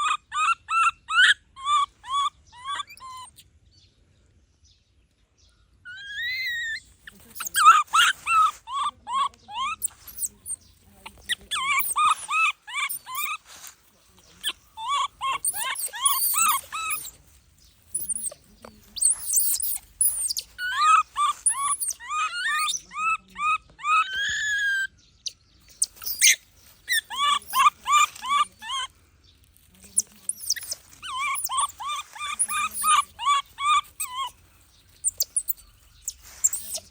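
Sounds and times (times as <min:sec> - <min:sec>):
baby monkey crying: 0:00.0 - 0:03.4, 0:05.9 - 0:13.7, 0:14.3 - 0:17.2, 0:17.9 - 0:24.9, 0:25.7 - 0:28.9, 0:30.0 - 0:36.9.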